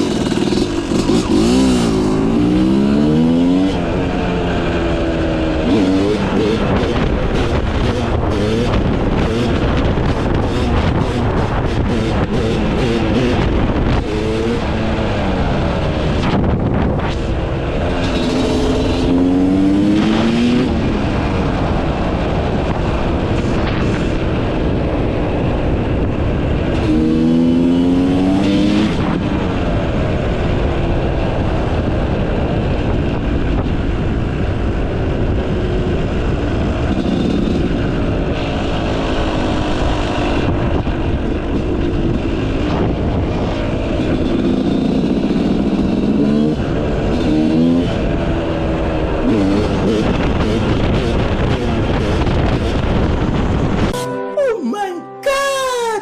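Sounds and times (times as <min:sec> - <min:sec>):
two-stroke motocross engine revving: 0:00.0 - 0:32.6, 0:35.0 - 0:54.0.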